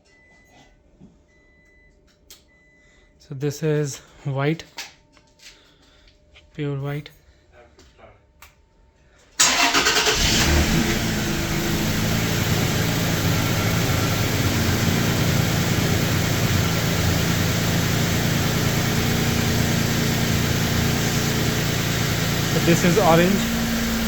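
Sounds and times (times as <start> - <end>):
truck engine starting and idling: 9.4 - 24.0.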